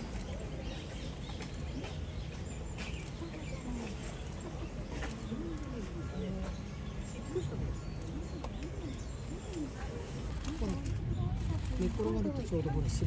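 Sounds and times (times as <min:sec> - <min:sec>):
steady low rumble: 0:10.2 - 0:13.0.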